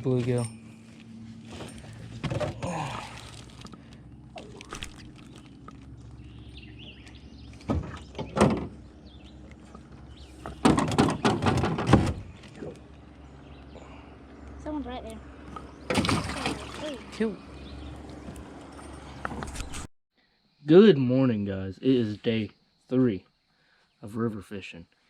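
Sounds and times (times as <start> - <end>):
steady low hum: 0.0 - 19.0
knocks against a boat: 10.4 - 12.2.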